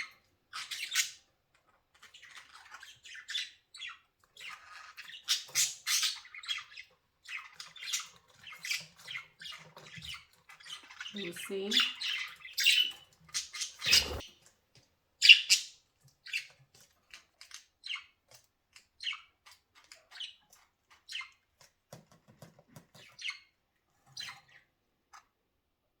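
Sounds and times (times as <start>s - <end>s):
budgerigars chirping and squawking: 0.5s - 1.3s, 2.0s - 14.2s, 15.2s - 15.7s, 17.4s - 18.2s, 18.8s - 21.4s, 24.2s - 24.6s.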